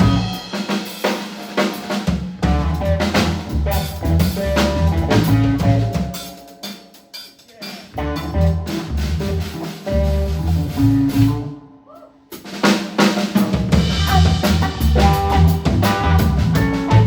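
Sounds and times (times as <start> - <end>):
bass line: 0.0 - 0.5, 2.4 - 6.2, 7.9 - 11.7, 13.6 - 17.0
blues band playing: 0.0 - 17.0
drum kit: 0.0 - 17.0.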